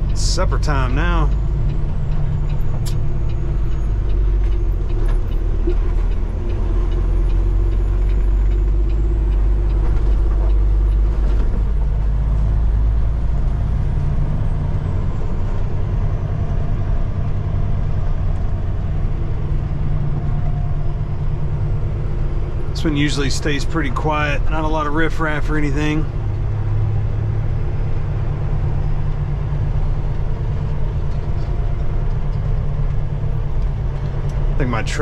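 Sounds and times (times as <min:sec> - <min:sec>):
truck diesel engine rumbling: 0:00.0 - 0:35.0.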